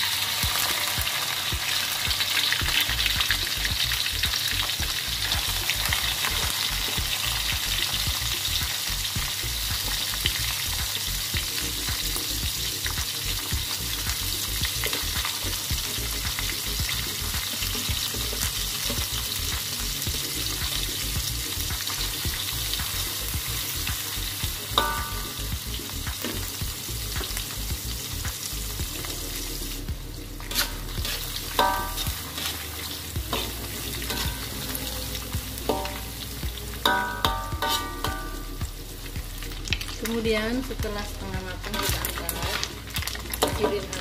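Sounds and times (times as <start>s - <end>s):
fish sizzling in hot oil: 0.0s - 44.0s
metal spatula scraping wok: 30.4s - 36.2s, 36.8s - 38.6s, 41.6s - 42.7s.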